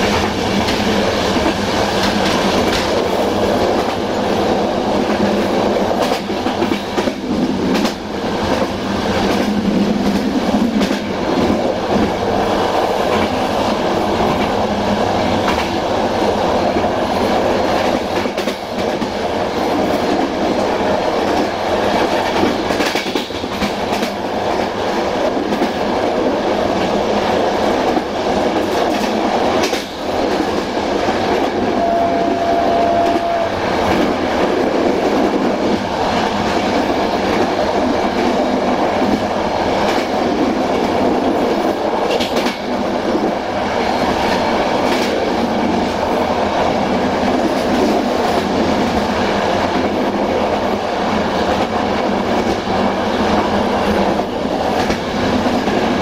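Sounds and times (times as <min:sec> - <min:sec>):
train rolling along track: 0:00.0 - 0:56.0.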